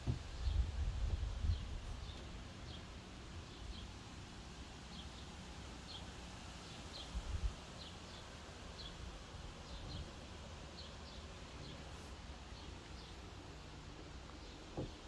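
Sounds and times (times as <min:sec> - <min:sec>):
low bump: 0:13.4 - 0:15.0.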